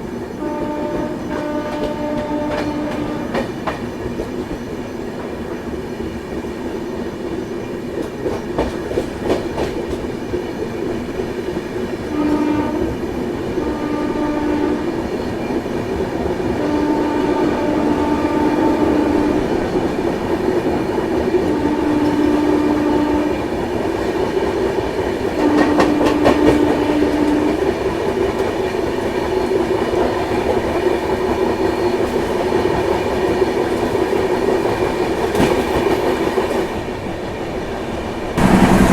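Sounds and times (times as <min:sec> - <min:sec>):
train wheels clattering: 0:00.0 - 0:06.4, 0:07.0 - 0:18.2, 0:19.0 - 0:36.8, 0:38.4 - 0:38.9
locomotive horn blasts: 0:00.4 - 0:03.5, 0:12.1 - 0:13.0, 0:13.6 - 0:15.0, 0:16.6 - 0:19.5, 0:21.5 - 0:23.4, 0:25.4 - 0:27.6.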